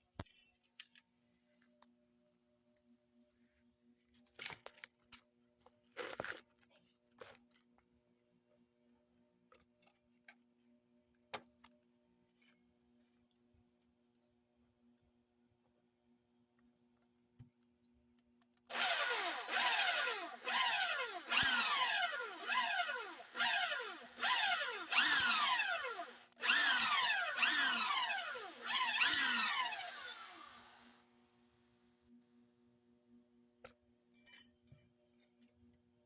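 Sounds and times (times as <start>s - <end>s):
electric drill boring into steel: 18.7s - 31.0s.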